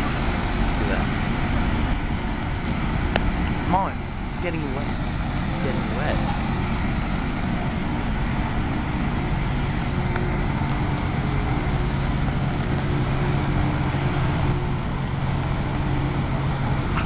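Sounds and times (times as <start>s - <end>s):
diesel engine drone: 0.0s - 17.0s.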